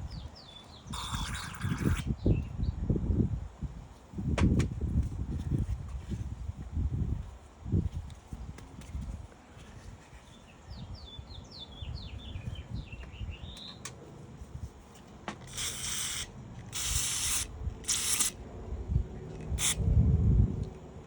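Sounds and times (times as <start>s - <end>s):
small bird chirping: 10.2s - 13.9s
aerosol can spraying: 15.4s - 18.4s, 19.6s - 19.8s.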